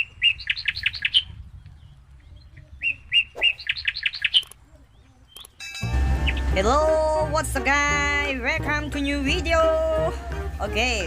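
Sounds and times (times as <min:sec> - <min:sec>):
small bird singing: 0:00.0 - 0:06.6.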